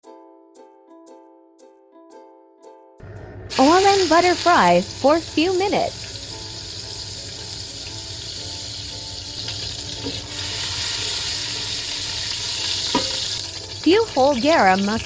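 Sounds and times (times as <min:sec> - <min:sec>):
oil and butter sizzling: 0:03.5 - 0:15.0.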